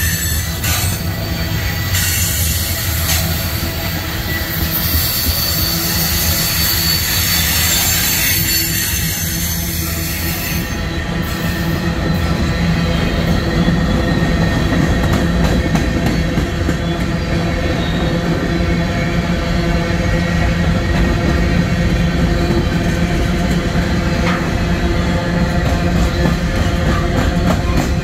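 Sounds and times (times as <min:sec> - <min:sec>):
high wheel squeal: 0:00.0 - 0:14.9
steel wheels rumbling on rail: 0:00.0 - 0:28.0.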